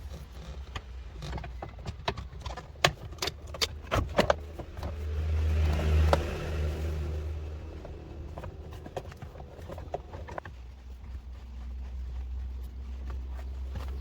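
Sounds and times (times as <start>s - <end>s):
vehicle engine rumble passing: 3.5s - 10.4s.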